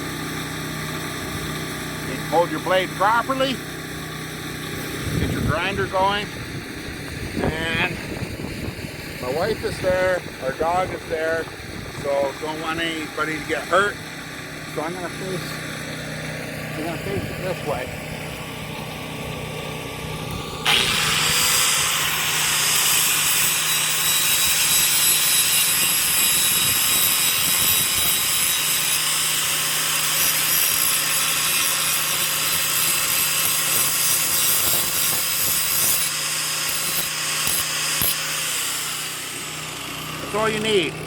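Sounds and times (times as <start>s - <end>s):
grinder motor running: 0.0s - 41.0s
grinding wheel on steel: 20.2s - 41.0s.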